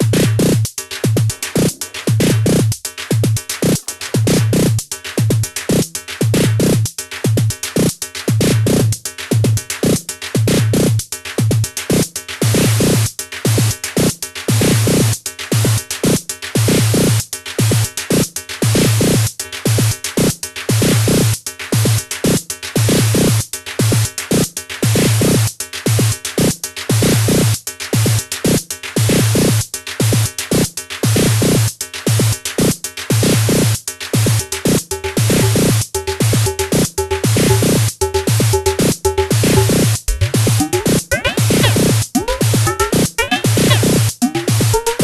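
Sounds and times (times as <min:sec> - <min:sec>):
drum machine electronic beat: 0:03.7 - 0:04.6, 0:34.3 - 0:45.0
short pitched synth figure: 0:39.5 - 0:45.0.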